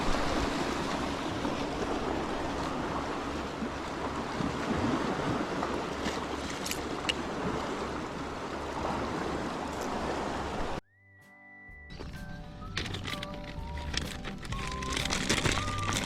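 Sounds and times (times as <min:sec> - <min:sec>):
sea water washing at shore: 0:00.0 - 0:10.8, 0:13.7 - 0:16.0
wind: 0:00.0 - 0:10.8, 0:11.8 - 0:16.0
held music tone: 0:10.8 - 0:16.0.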